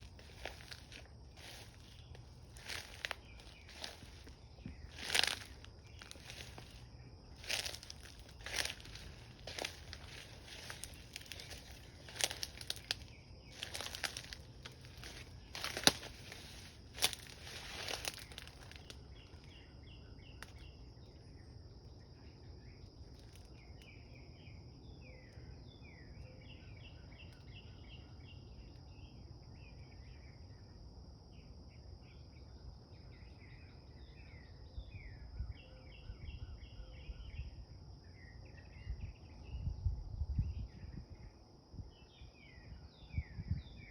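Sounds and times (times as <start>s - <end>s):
footsteps crunching on dry ground: 0.0s - 19.6s
small birds chirping: 0.0s - 21.4s.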